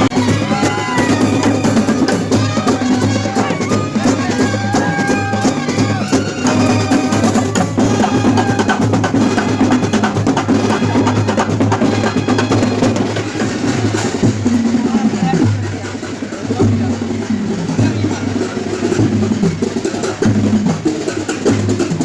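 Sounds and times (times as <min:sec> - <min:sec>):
high melody line: 0:00.0 - 0:13.8
fast dense drumming: 0:00.0 - 0:22.0.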